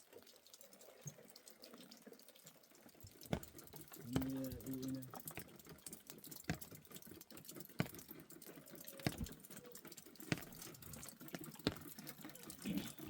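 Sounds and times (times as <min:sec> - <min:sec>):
sharp taps: 0:03.0 - 0:12.6.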